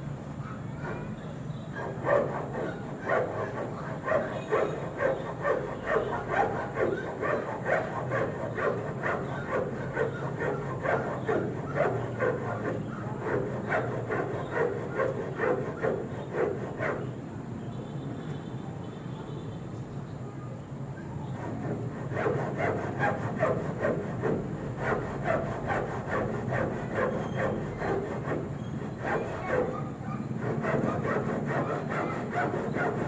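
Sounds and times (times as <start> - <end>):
dog barking: 0.4 - 16.0, 29.1 - 31.1.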